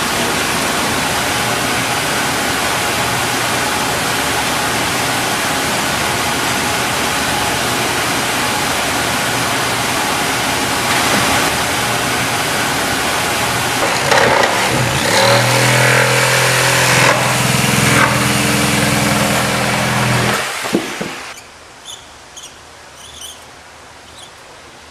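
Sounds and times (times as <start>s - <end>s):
loud factory machinery: 0.0s - 21.4s
machine low hum: 0.0s - 21.4s
knocks: 20.6s - 21.3s.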